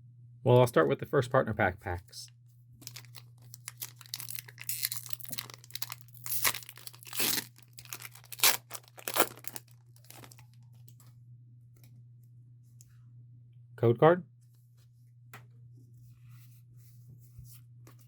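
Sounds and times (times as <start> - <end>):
foil wrapper tearing and crinkling: 2.8 - 10.5.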